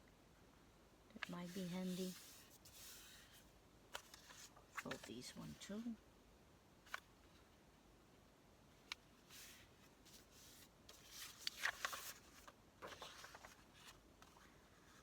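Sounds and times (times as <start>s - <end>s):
paper rustling and crinkling: 1.2s - 5.8s, 9.2s - 15.0s.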